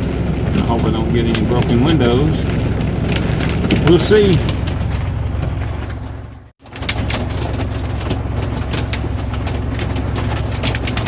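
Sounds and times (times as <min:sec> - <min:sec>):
steady low rumble: 0:00.0 - 0:11.0
hail ticking on truck cab: 0:06.6 - 0:11.0.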